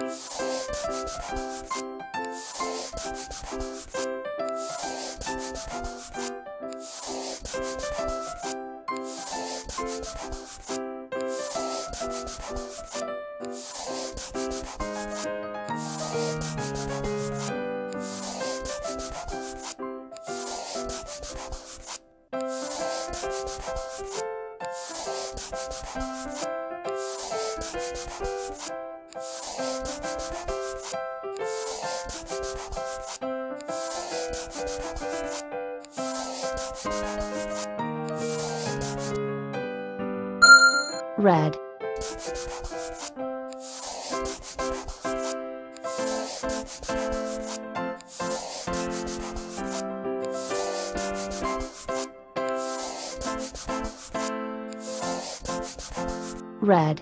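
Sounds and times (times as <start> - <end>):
light children's tune: 0.0 - 39.2, 40.4 - 57.0
marker scribbling on paper: 0.0 - 39.2, 40.4 - 56.4.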